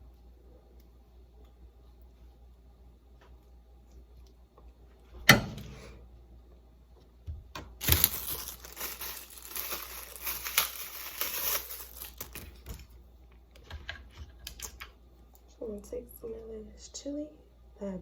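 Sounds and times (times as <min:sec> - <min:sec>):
packaging crinkling and tearing: 0:07.7 - 0:12.9.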